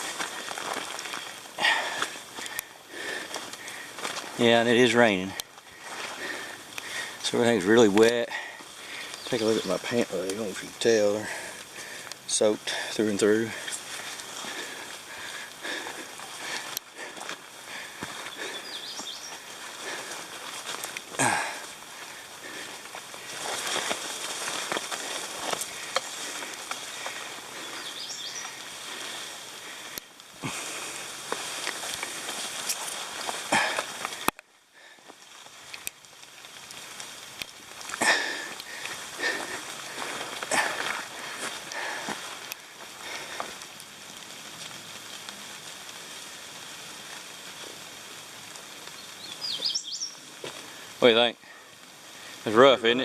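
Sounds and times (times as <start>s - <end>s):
twigs snapping: 0.0s - 4.4s, 7.9s - 10.8s, 13.5s - 46.0s
footsteps in brush: 0.0s - 50.9s
rustling leaves: 0.0s - 53.0s
steady hiss of rain: 0.0s - 53.0s.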